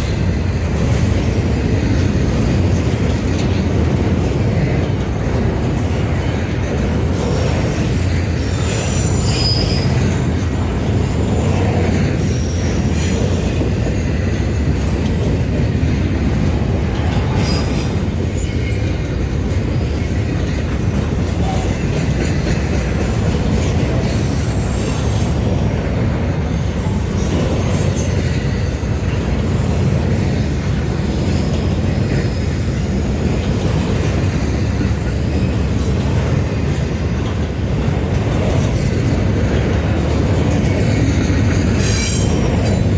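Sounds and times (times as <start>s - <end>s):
train wheels rumbling on track: 0.0s - 42.9s
high wheel squeal: 8.4s - 10.3s, 41.8s - 42.9s.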